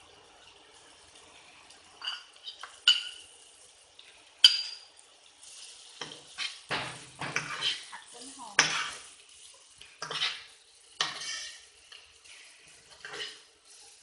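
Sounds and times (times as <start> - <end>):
metal spatula scraping a wok: 5.5 - 14.0.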